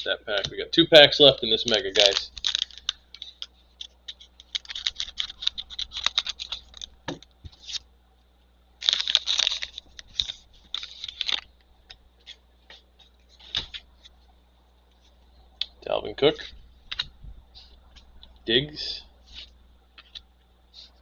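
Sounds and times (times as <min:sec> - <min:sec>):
plastic wrapper crinkling and tearing: 0:01.5 - 0:07.8, 0:08.8 - 0:11.5
cards clicking: 0:01.6 - 0:07.8.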